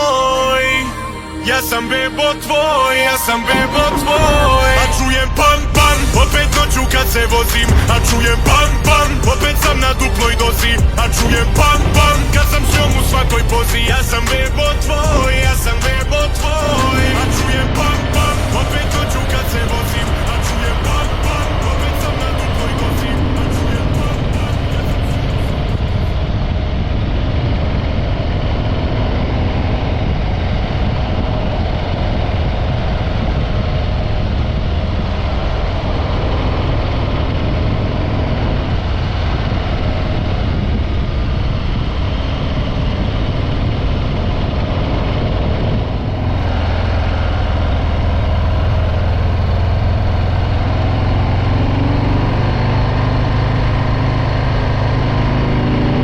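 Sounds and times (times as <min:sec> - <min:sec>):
motorcycle engine running: 0:04.2 - 0:26.4.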